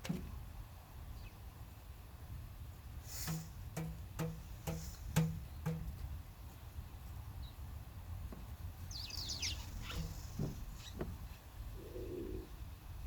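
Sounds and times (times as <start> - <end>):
small bird chirping: 8.9 - 10.2.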